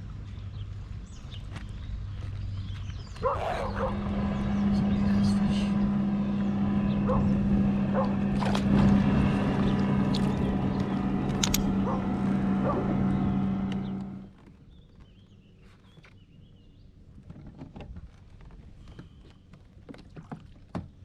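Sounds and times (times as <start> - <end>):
boat motor humming: 0.0 - 14.6.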